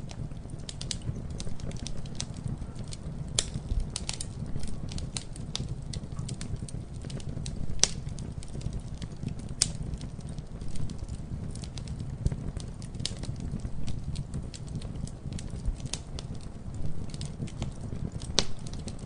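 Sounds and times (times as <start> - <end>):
low rumble of flames: 0.0 - 19.0
wood crackling and popping: 0.0 - 19.0.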